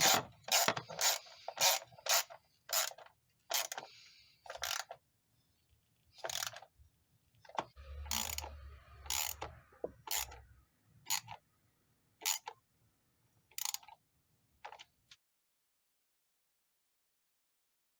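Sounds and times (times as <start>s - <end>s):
hand tool clicking: 0.0s - 3.9s.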